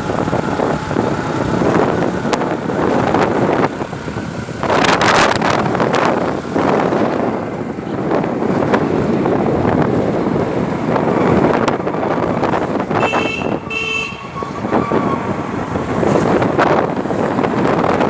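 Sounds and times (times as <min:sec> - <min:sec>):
road noise: 0:00.0 - 0:18.0
wind on microphone: 0:00.0 - 0:18.0
vehicle horn toots: 0:12.9 - 0:15.1.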